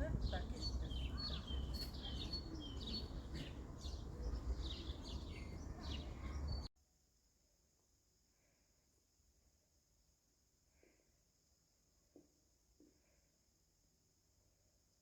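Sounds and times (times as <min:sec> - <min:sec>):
small birds chirping: 0:00.0 - 0:06.7
outdoor background noise: 0:00.0 - 0:15.0.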